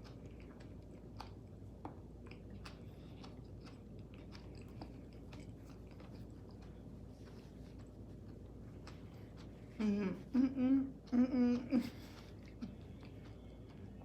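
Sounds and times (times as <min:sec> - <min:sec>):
wet mouth clicks and smacks: 0:00.0 - 0:09.8
chewing soft food: 0:00.0 - 0:14.0.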